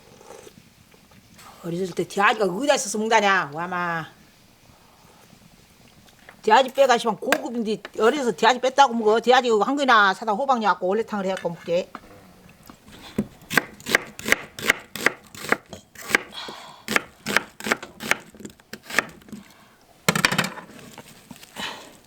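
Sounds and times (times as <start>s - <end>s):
knife chopping on cutting board: 13.2s - 16.3s, 16.9s - 19.3s
scraping rustle: 20.5s - 21.6s.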